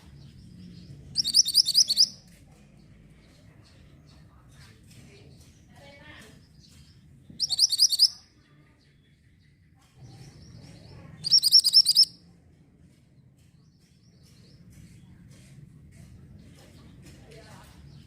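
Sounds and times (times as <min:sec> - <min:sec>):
songbird chirping: 0:00.0 - 0:18.0.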